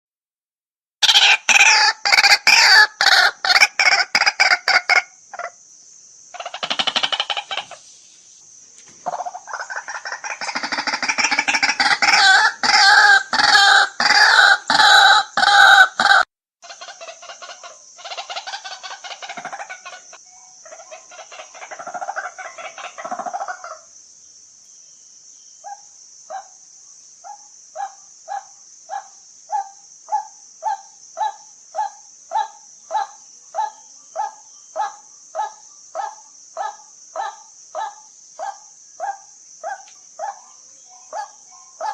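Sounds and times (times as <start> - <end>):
waterhen calling harsh croaks: 1.0 - 5.6, 6.3 - 7.8, 9.0 - 23.9
high insect-like hiss: 1.1 - 41.9.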